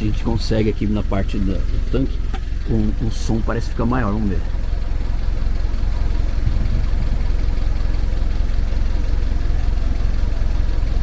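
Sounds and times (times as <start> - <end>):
car engine idling: 0.0 - 11.0
fuel pump bubbling and thumping: 6.2 - 7.9.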